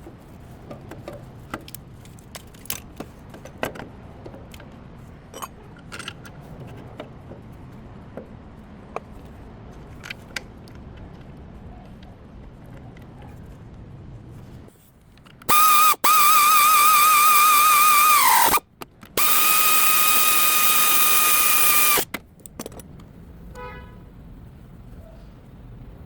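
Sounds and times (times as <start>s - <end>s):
power tool motor whining: 15.5s - 18.6s, 19.2s - 22.1s.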